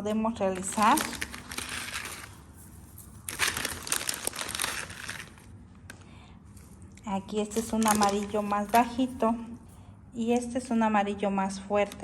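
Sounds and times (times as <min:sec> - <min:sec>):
plastic packaging crinkling: 0:00.4 - 0:05.6, 0:07.4 - 0:09.2.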